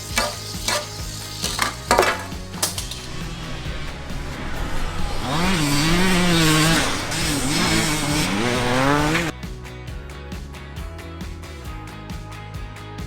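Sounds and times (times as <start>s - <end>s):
dirt bike engine revving: 0.0s - 9.4s
background music: 0.0s - 13.0s.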